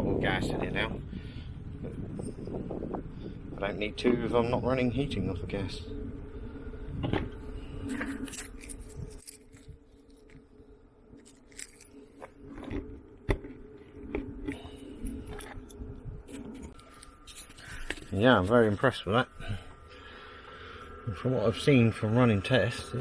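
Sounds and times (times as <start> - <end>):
faint steady hum: 0.0 - 23.0
objects being handled: 11.1 - 18.2.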